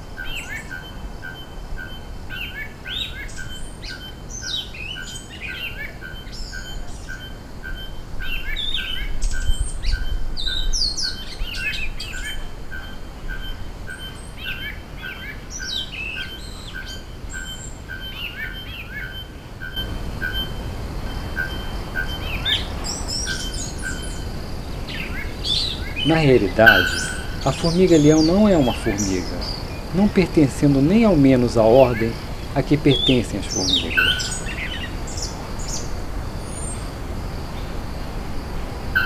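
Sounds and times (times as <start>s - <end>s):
small birds chirping: 0.0s - 39.0s
faint pulsing high tone: 19.6s - 35.7s
low rumbling background: 19.8s - 38.8s.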